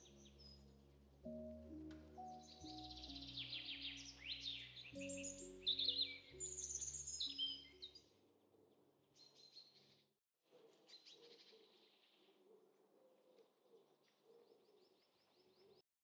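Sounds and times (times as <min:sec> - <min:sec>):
small birds chirping: 0:00.0 - 0:08.3.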